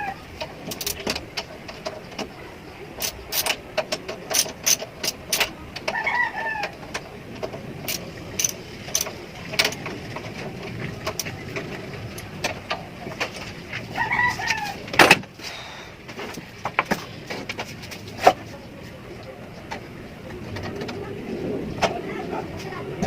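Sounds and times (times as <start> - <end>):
sharp clicks and knocks: 0.4 - 13.9, 16.1 - 18.6.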